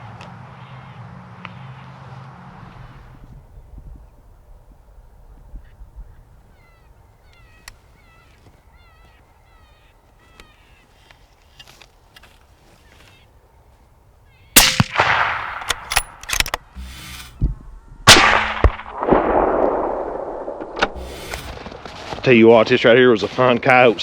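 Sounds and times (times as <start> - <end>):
wind rumbling on microphone: 2.5 - 8.9, 18.9 - 22.0
loud rifle shot: 14.6 - 17.4, 18.0 - 21.6.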